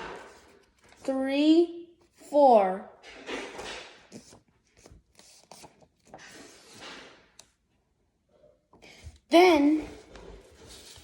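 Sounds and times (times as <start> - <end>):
paper rustling and creasing: 3.1 - 7.4, 10.0 - 11.0.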